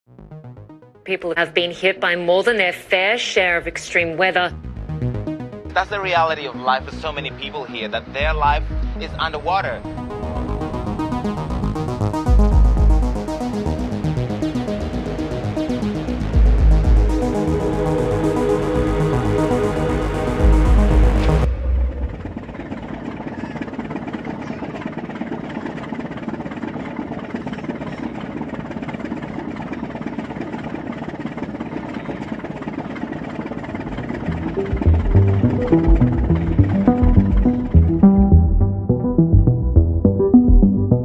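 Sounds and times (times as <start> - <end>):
electronic synthesizer music: 0.1 - 1.1, 4.5 - 23.0, 33.7 - 41.0
engine running steadily: 1.1 - 40.8.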